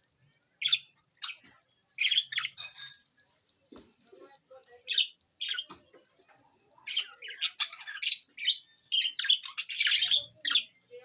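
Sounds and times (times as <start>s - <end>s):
budgerigars chirping: 0.6s - 3.0s, 6.8s - 10.8s.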